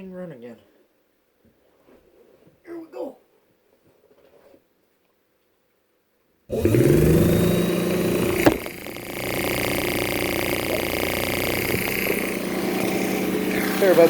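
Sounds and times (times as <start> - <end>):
air pump motor humming: 6.5 - 14.0.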